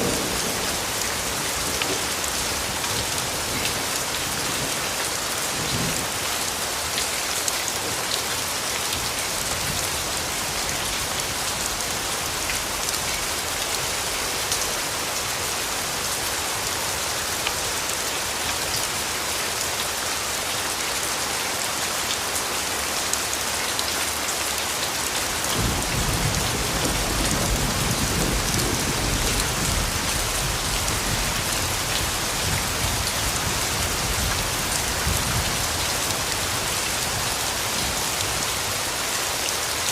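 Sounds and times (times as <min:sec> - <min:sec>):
thunder rumbling: 0:00.0 - 0:03.6
rain pattering: 0:00.0 - 0:39.9.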